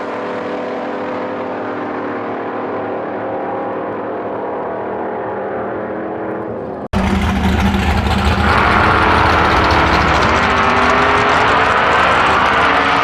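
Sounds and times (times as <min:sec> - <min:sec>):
drag car engine revving: 0:06.6 - 0:13.0.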